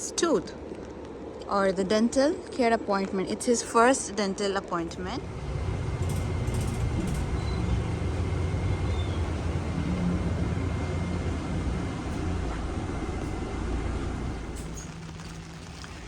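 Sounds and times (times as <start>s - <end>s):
vehicle engine rumble: 4.9s - 16.0s.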